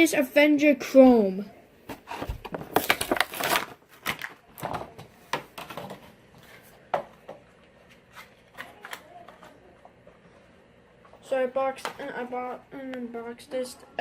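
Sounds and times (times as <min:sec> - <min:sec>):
plastic packaging crinkling: 0:02.2 - 0:04.8.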